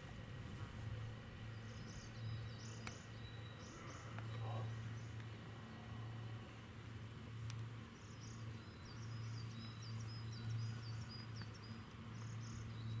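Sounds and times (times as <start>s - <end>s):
steady low hum: 0.0s - 13.0s
small songbird singing: 1.4s - 5.3s, 7.9s - 13.0s.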